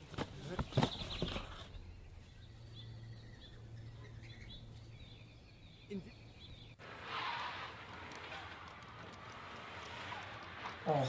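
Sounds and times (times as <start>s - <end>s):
faint bird chirps: 0.7s - 6.8s.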